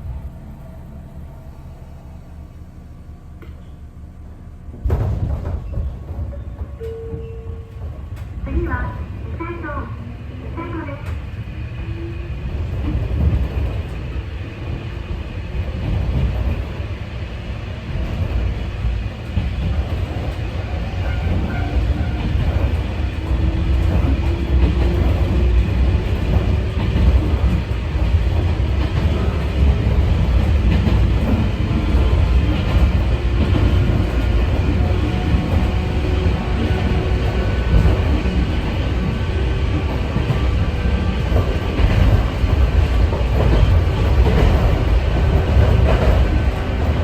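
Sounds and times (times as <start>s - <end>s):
train running rumble: 0.0s - 47.0s.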